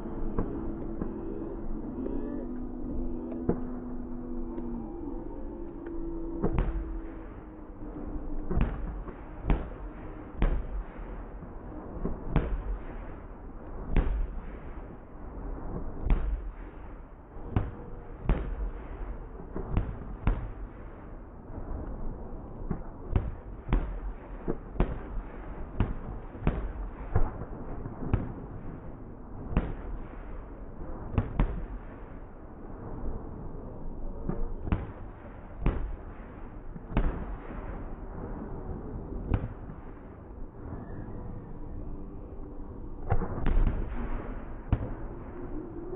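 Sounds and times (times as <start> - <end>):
rumbling background: 0.0 - 45.9
fireworks bangs: 34.3 - 40.8.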